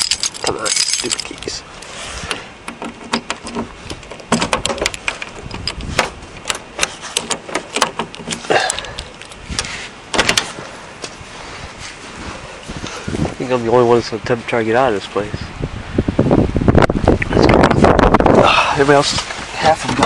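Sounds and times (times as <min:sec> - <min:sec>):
keys and car door clicking: 0:00.0 - 0:01.6, 0:02.6 - 0:10.5.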